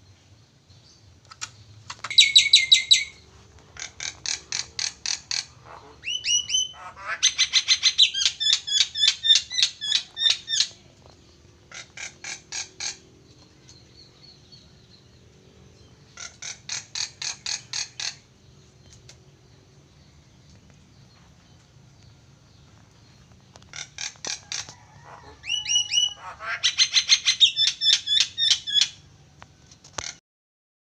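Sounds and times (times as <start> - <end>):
starling singing: 1.9 - 18.9, 22.6 - 29.0.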